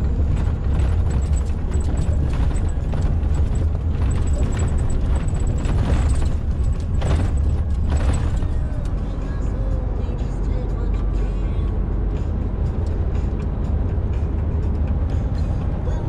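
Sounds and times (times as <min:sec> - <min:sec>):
tyres knocking over rough road: 0:00.0 - 0:09.4
truck engine and road rumble: 0:00.0 - 0:16.0.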